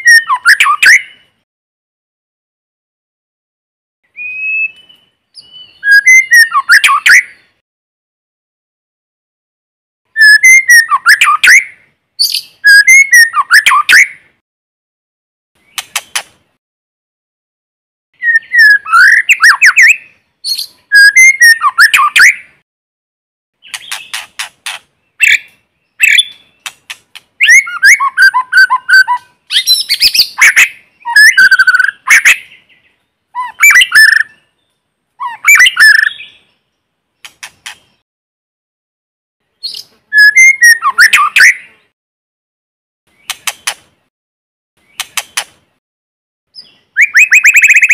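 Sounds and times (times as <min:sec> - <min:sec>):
bird singing whistled notes: 0:00.0 - 0:01.4, 0:04.1 - 0:07.6, 0:10.1 - 0:14.3, 0:18.2 - 0:22.6, 0:25.0 - 0:26.8, 0:27.4 - 0:36.7, 0:39.6 - 0:41.9, 0:46.5 - 0:47.9.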